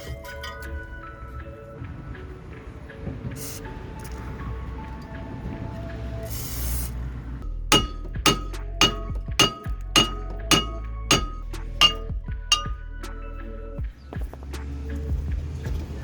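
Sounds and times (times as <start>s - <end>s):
bell-like clinks: 7.7s - 12.8s.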